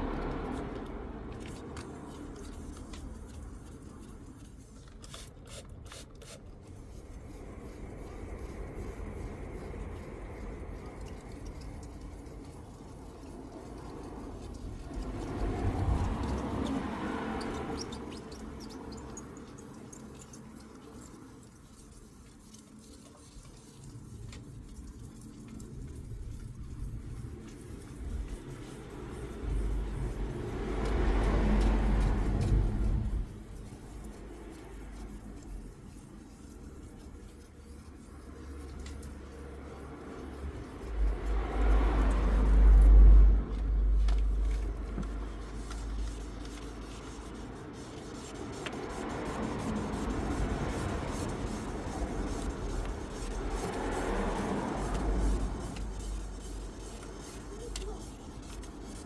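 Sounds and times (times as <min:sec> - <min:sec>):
distant traffic rumble: 0:00.0 - 0:05.0, 0:06.5 - 0:22.1, 0:23.8 - 0:59.0
hand sanding with sandpaper: 0:00.0 - 0:59.0.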